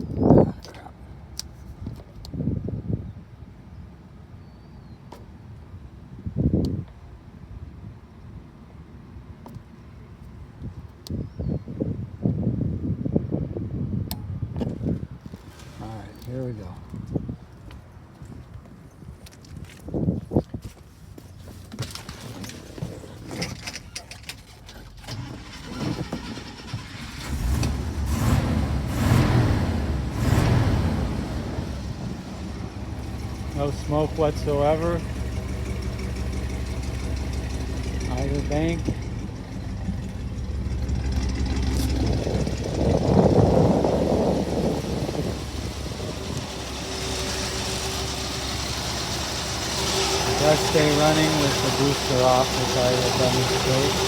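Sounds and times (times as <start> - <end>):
truck engine starting and rumbling: 14.1 - 17.4, 21.8 - 54.0.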